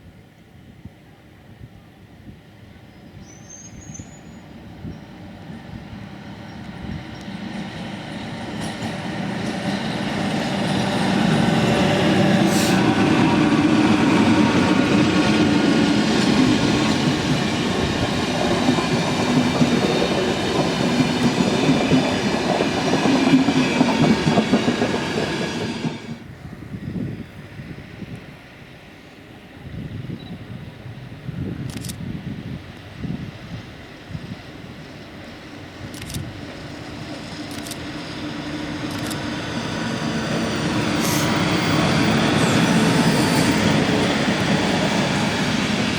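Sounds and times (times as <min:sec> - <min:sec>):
train passing: 0:02.0 - 0:45.9.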